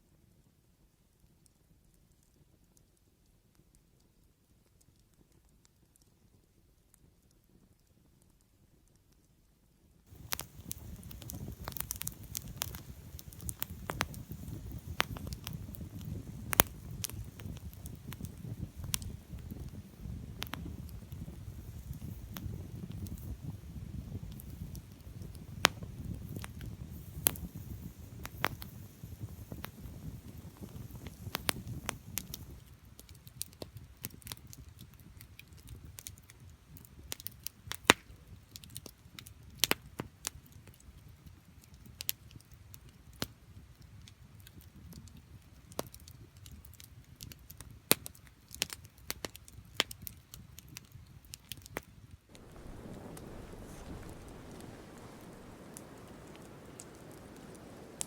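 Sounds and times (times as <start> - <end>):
low rush of flame: 10.1 - 32.7, 52.3 - 58.0
wood fire crackling and popping: 10.1 - 58.0.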